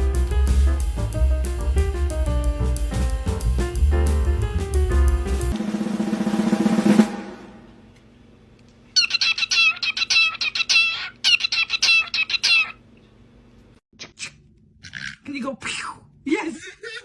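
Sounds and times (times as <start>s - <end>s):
drum roll: 0.0s - 8.0s.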